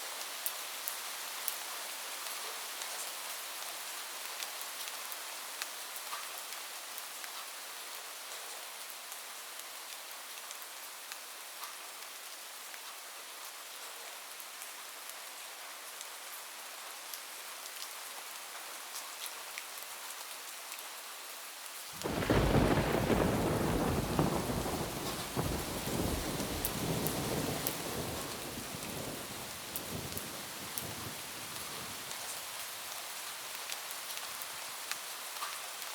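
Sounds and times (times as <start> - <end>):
rain on a roof: 0.0 - 35.9
thunder clap and rumble: 22.0 - 32.0.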